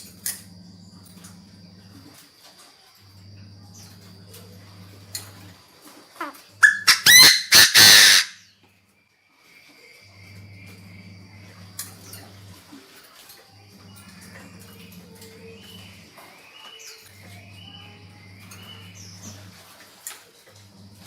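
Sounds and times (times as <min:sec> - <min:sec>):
faint low hum: 0:00.0 - 0:06.7, 0:08.4 - 0:21.0
francolin calling: 0:13.6 - 0:19.6.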